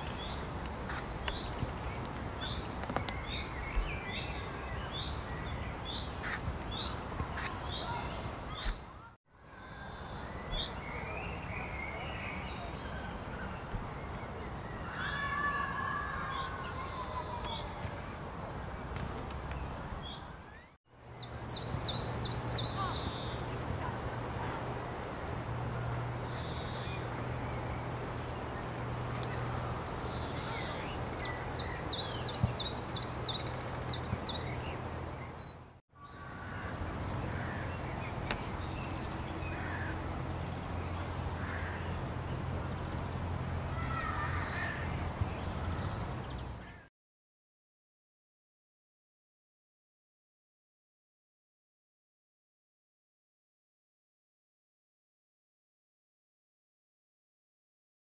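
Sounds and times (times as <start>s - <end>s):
wild birds calling: 0.0s - 8.9s, 25.5s - 46.9s.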